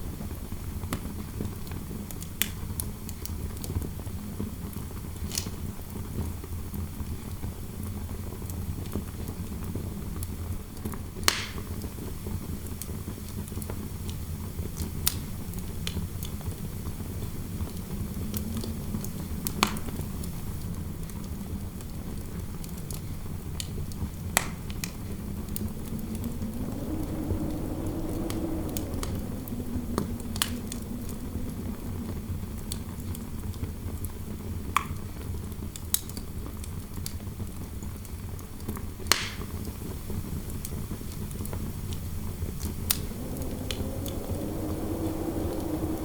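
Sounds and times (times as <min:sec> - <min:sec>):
fire crackling and popping: 0:23.6 - 0:34.8, 0:40.3 - 0:46.0
wind howling: 0:24.2 - 0:34.6, 0:40.3 - 0:46.0.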